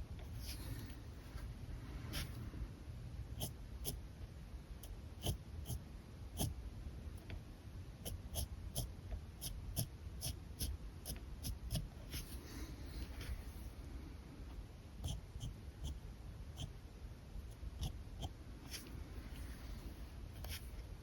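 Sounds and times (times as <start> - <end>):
marker scratching on paper: 3.4 - 4.0, 5.2 - 5.8, 8.0 - 13.6, 15.0 - 16.0, 17.5 - 20.8.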